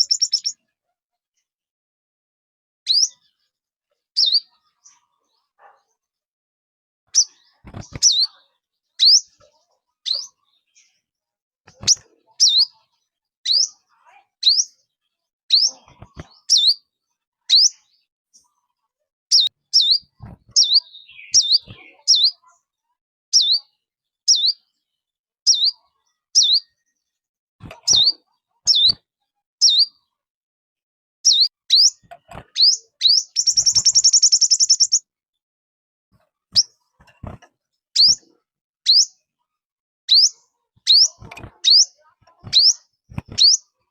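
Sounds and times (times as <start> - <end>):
songbird high sharp chirps: 0.0 - 0.6, 2.9 - 3.2, 4.2 - 4.5, 9.0 - 9.3, 10.1 - 10.4, 14.4 - 14.7, 17.5 - 17.7, 19.3 - 22.4, 23.4 - 23.6, 24.3 - 24.6, 26.4 - 26.7, 27.8 - 29.0, 29.6 - 29.9, 31.3 - 35.0, 38.0 - 38.3, 38.9 - 39.1, 40.1 - 43.7.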